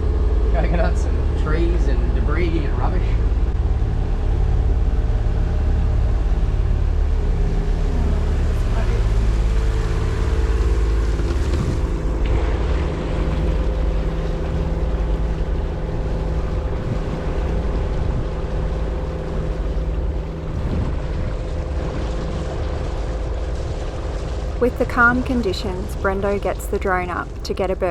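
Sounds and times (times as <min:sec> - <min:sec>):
boat engine hum: 0:00.0 - 0:27.9
rushing water: 0:00.0 - 0:27.9
wind on microphone: 0:07.8 - 0:26.0.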